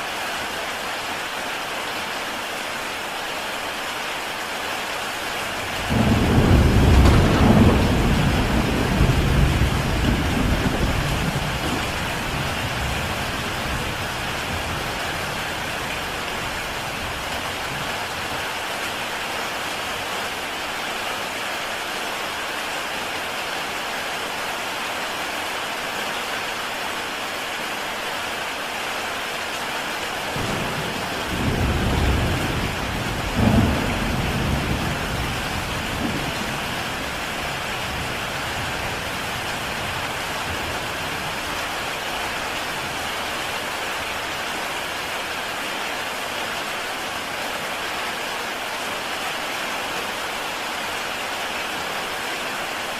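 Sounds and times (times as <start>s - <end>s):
heavy rain on a tile roof: 0.0s - 52.9s
thunder rumbling and cracking: 5.7s - 18.4s, 30.4s - 41.8s.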